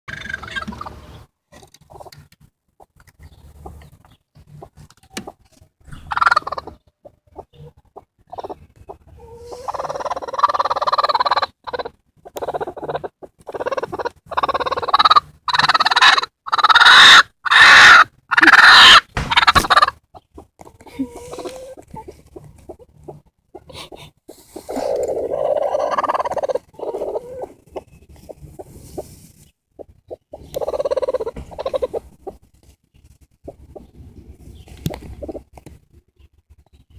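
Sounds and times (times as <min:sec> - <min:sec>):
hen making harsh defensive calls: 0:13.5 - 0:20.0.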